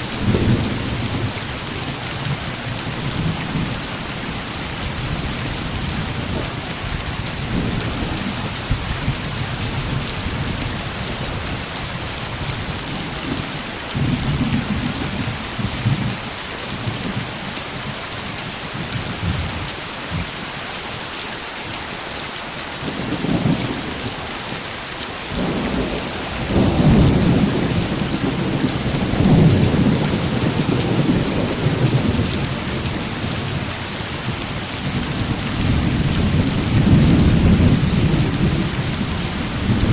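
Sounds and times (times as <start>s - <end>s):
heavy rain hiss: 0.0s - 39.9s
thunder rumbling: 25.4s - 32.8s, 34.9s - 39.9s.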